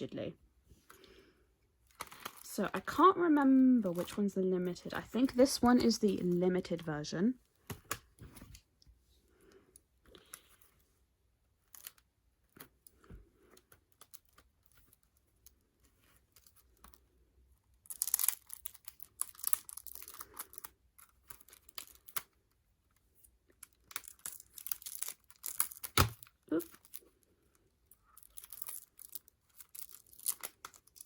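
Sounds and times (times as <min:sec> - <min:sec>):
plastic packaging crinkling: 0:17.8 - 0:22.4, 0:23.6 - 0:27.1, 0:27.9 - 0:31.0.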